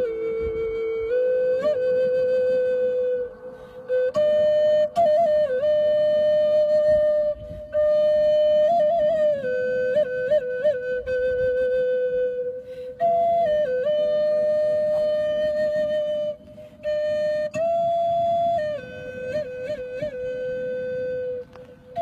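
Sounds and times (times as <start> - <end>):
flute-like solo melody: 0.0 - 22.0.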